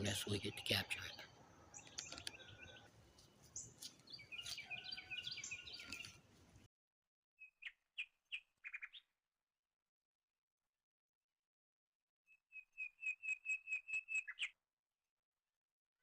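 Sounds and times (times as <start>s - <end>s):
wild birds chirping: 0.0s - 6.7s.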